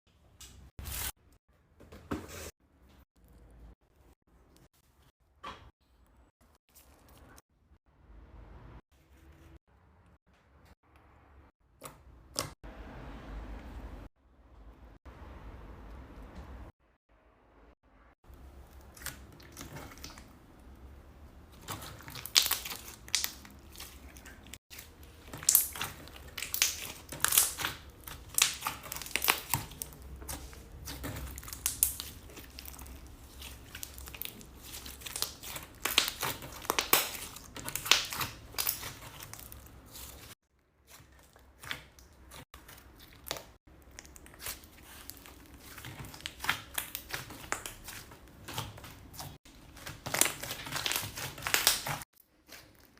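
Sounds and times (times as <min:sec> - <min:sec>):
slime squished by hand: 0:21.5 - 0:52.9.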